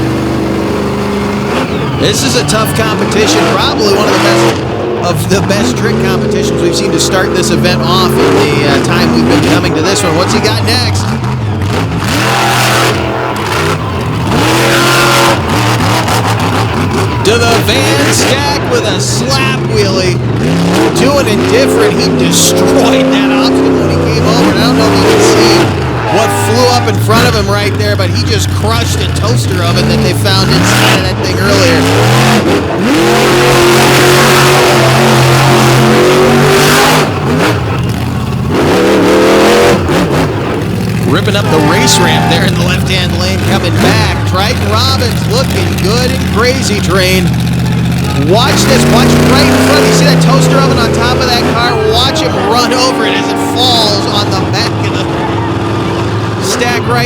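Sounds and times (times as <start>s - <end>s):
truck engine revving: 0.0s - 57.0s.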